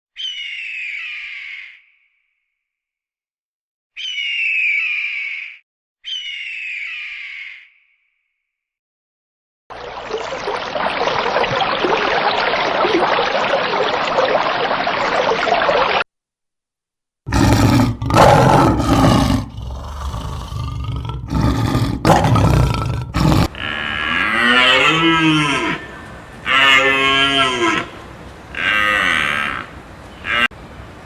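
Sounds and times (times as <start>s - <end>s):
big cat growling and roaring: 17.3s - 30.6s
steady rushing hiss: 23.5s - 31.0s.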